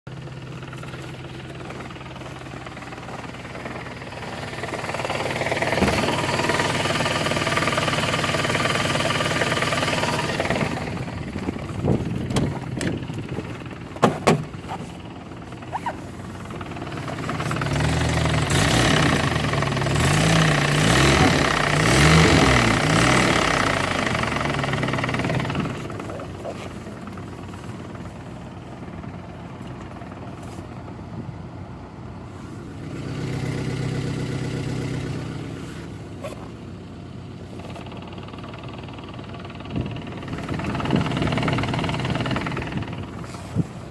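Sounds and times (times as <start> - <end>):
car engine running: 0.1 - 43.9
gearbox knocking: 11.4 - 14.8.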